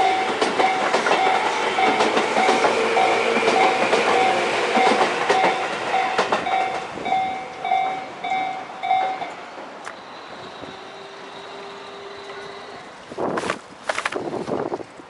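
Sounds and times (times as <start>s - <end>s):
train wheels clacking: 0.0s - 10.0s
crossing warning bell ringing: 0.0s - 13.0s.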